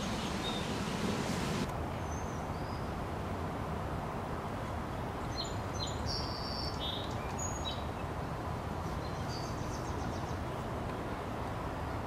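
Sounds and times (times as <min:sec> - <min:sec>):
small birds chirping: 0:00.0 - 0:02.9, 0:05.3 - 0:08.1.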